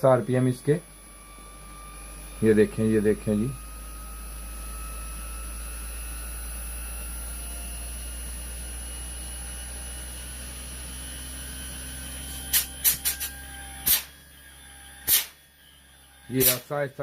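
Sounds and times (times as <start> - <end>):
air conditioner compressor hum: 0.0 - 17.0
sharp click: 12.4 - 14.1, 15.0 - 15.4, 16.4 - 16.8.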